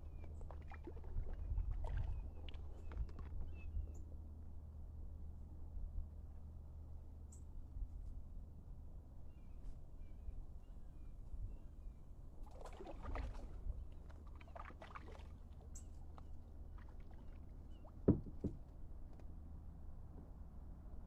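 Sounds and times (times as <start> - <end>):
paddle splashing in water: 0.1 - 3.4, 12.4 - 18.6
sharp knocks: 18.1 - 18.6.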